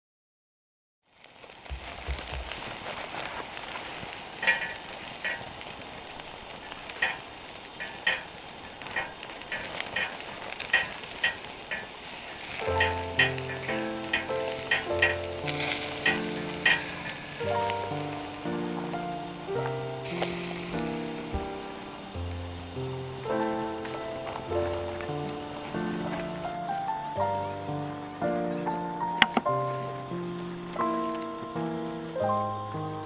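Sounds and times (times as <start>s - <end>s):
food sizzling in a pan: 1.1s - 29.1s
soft music: 9.0s - 33.0s.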